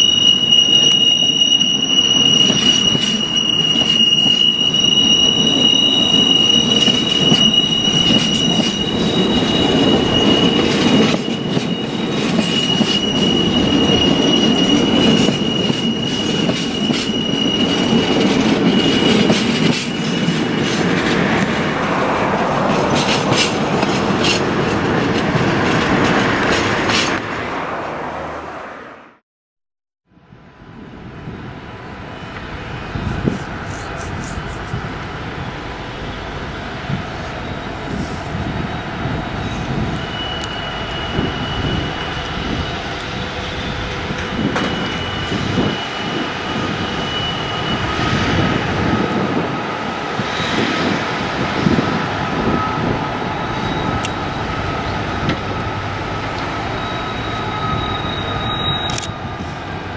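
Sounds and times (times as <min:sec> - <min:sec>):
high-pitched wheel squeal: 0:00.0 - 0:20.9, 0:35.4 - 0:59.8
wagon wheels rumbling on rail: 0:00.0 - 0:27.5, 0:32.2 - 0:59.9.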